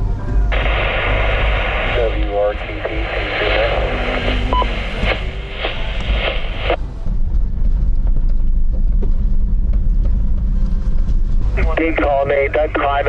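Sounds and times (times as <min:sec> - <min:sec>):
two-way radio hiss: 0:00.5 - 0:06.8, 0:11.6 - 0:13.0
vehicle driving rumble: 0:02.6 - 0:13.0.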